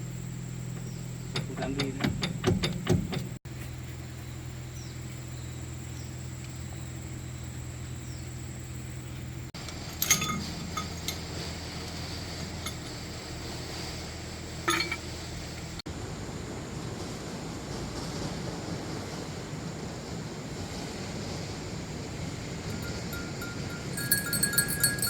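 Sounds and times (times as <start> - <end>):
metal tools clinking: 9.6 - 11.5, 12.6 - 13.1, 14.6 - 15.2, 22.7 - 25.0.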